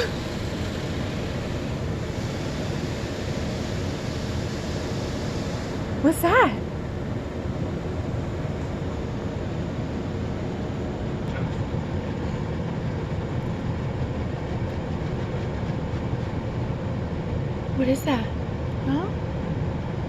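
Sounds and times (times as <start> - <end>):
car wash machinery rumbling: 0.0 - 15.0.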